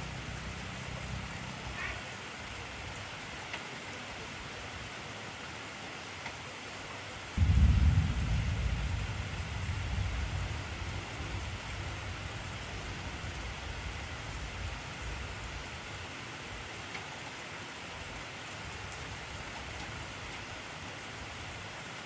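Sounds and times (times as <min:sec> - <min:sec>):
heavy rainfall: 0:00.0 - 0:22.0
rolling thunder: 0:07.4 - 0:15.2.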